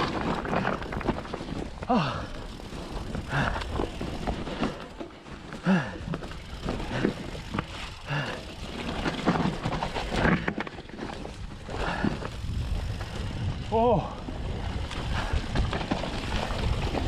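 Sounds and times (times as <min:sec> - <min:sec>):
bike rattling and knocking: 0:00.0 - 0:17.0
tyre rumble on trail: 0:00.0 - 0:17.0
rider grunting: 0:00.2 - 0:10.6, 0:11.6 - 0:13.0.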